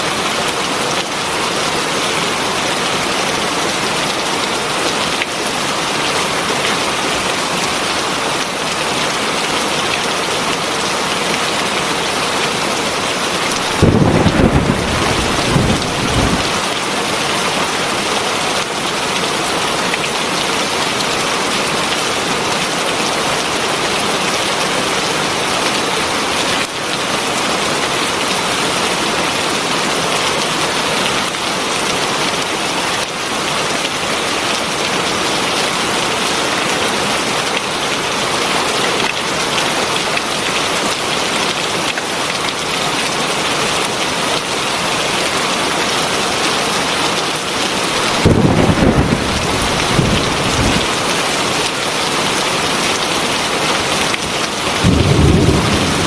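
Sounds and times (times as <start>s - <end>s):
heavy rain falling: 0.0s - 56.0s
thunder rumble: 13.5s - 16.7s, 48.2s - 50.9s, 54.8s - 56.0s.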